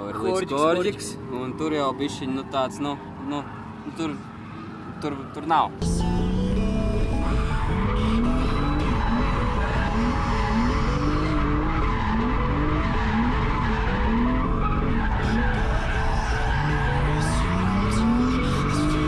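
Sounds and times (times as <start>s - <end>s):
car engine revving: 5.8s - 19.0s
tyres skidding: 5.8s - 19.0s.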